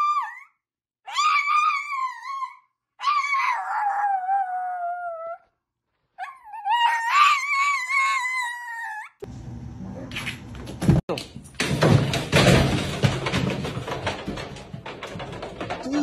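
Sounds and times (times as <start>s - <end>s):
pet howling: 1.1s - 5.4s, 6.2s - 9.2s.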